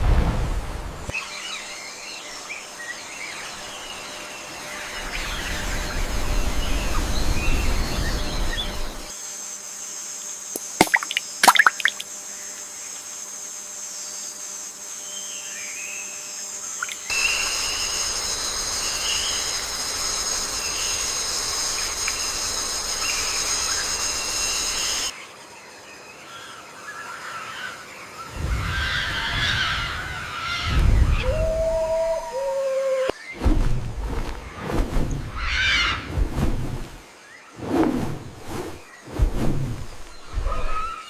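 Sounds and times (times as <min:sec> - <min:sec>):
insect chorus: 0:01.0 - 0:41.0
bird calls: 0:26.3 - 0:33.4.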